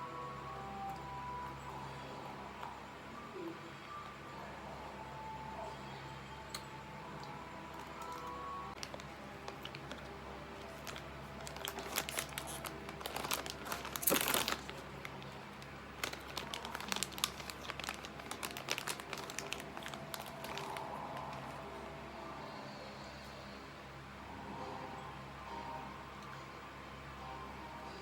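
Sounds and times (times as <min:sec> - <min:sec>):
wrapper crinkling: 0:07.8 - 0:21.7.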